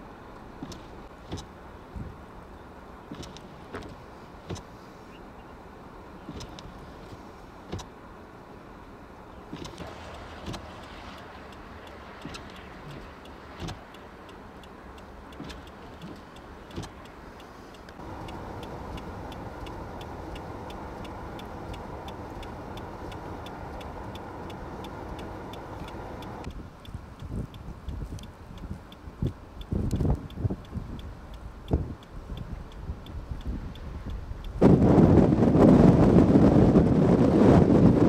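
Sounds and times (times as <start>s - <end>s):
vehicle noise rush: 0.0s - 38.0s
light regular ticking: 9.5s - 34.6s.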